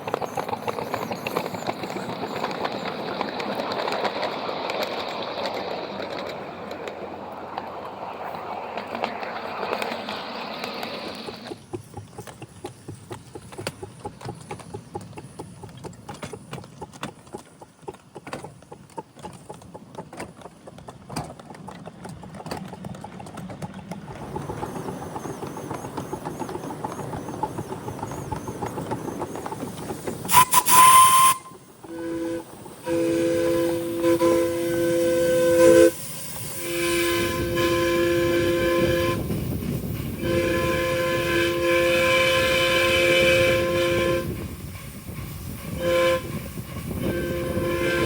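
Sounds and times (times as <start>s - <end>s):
miniature steam train clicking: 0.0s - 48.0s
steam whistle blast: 30.3s - 39.3s, 40.2s - 44.5s, 45.7s - 48.0s.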